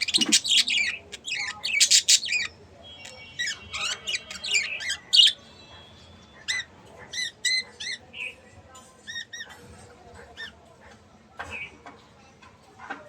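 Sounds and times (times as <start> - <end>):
budgerigars chirping and squawking: 0.0 - 5.5, 6.4 - 8.4, 9.0 - 10.6.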